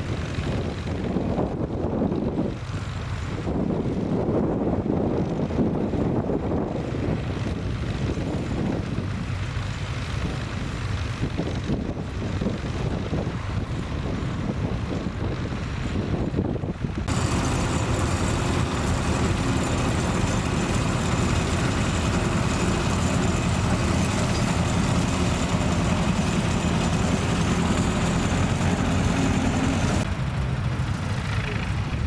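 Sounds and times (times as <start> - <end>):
tractor engine running: 16.8 - 32.0.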